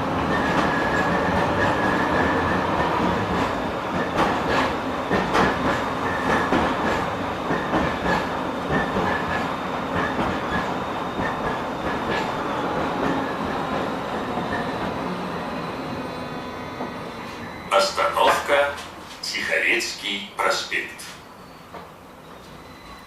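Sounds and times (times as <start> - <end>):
tram rolling rumble: 0.0 - 23.0
tram wheels clicking over rail joints: 0.1 - 15.0.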